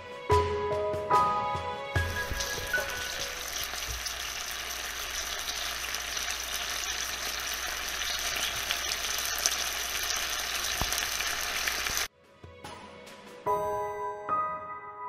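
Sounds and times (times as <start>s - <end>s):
patties sizzling in frying pan: 2.0s - 12.1s.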